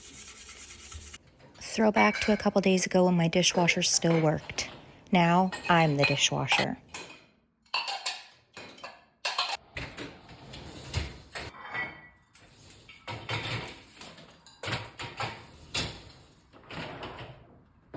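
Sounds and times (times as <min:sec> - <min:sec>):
kitchenware knocking and clunking: 0:01.7 - 0:02.8, 0:03.4 - 0:10.2, 0:12.9 - 0:16.0.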